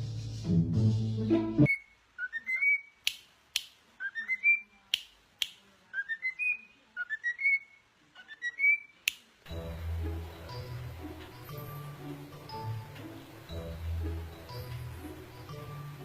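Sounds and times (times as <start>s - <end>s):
bird chirping whistled phrases: 1.7s - 3.0s, 4.0s - 4.8s, 5.9s - 9.0s.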